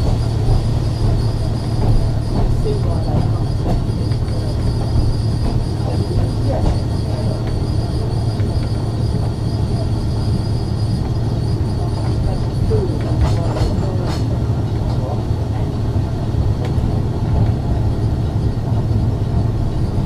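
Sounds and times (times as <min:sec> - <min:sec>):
wheel squeal: 0:00.0 - 0:14.3
tram wheels rumbling: 0:00.0 - 0:20.0.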